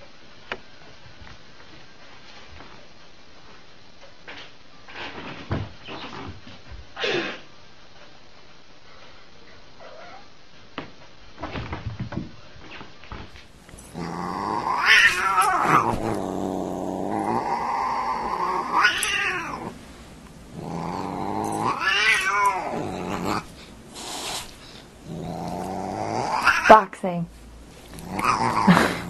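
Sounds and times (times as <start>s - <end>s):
cat growling low: 13.7s - 26.9s, 27.9s - 29.0s
cat yowling: 14.0s - 16.1s, 17.3s - 19.8s, 20.6s - 23.4s, 26.2s - 26.8s.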